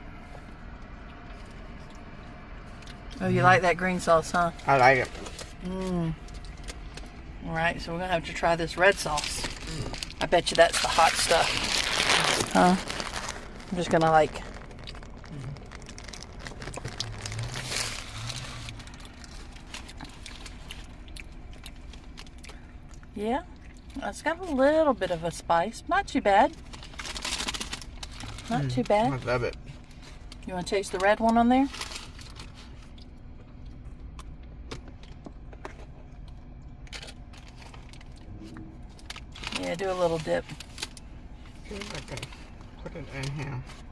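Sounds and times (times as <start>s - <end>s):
low hum: 0.0s - 43.9s
wrapper crinkling: 8.9s - 22.4s, 26.5s - 29.2s, 29.8s - 33.0s, 38.9s - 42.4s.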